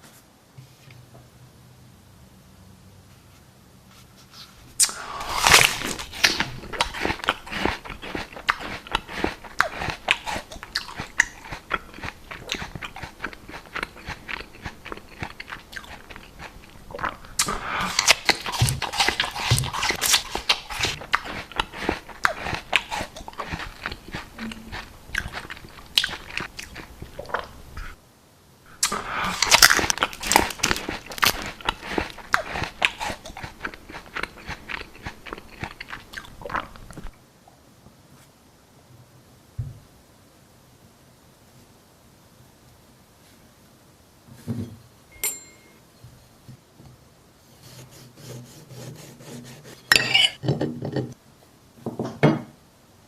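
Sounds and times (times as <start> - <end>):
wet chewing and crunching: 5.2 - 28.0, 28.8 - 37.1.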